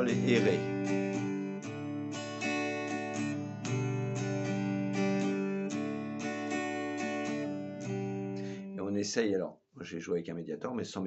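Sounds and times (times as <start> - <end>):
acoustic guitar strumming: 0.0 - 8.8.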